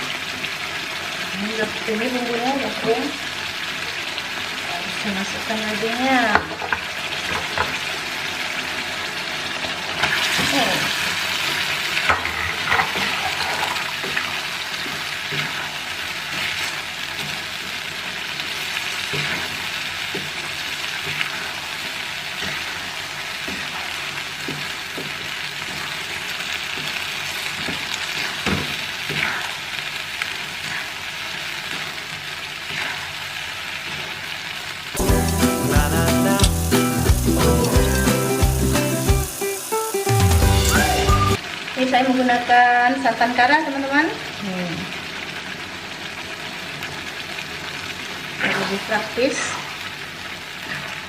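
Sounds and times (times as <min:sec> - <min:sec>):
meat sizzling in a pan: 0:00.0 - 0:51.0
music: 0:35.0 - 0:41.4.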